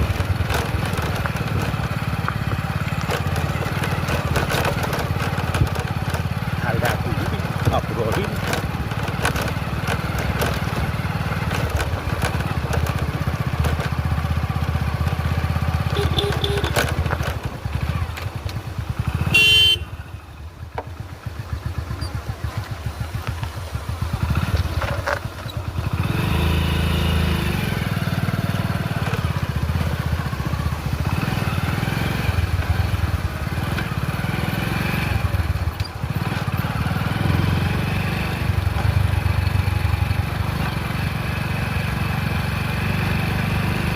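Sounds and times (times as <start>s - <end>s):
motorcycle engine running: 0.0s - 43.9s
horn beep: 15.9s - 16.8s, 19.2s - 20.0s.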